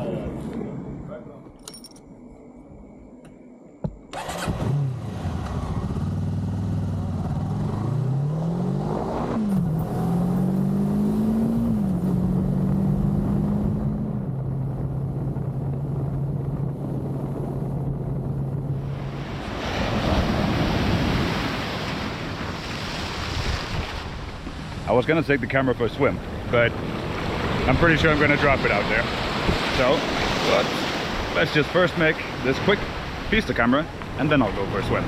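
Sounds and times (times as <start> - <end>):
motorcycle engine accelerating: 4.1 - 18.9
wind rushing: 8.6 - 31.4.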